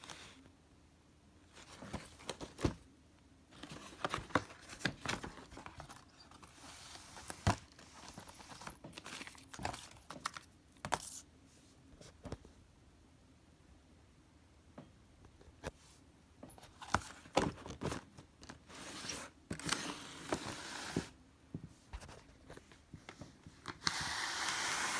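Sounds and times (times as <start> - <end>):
wrapping rustling and crinkling: 1.5 - 2.8, 3.5 - 11.2.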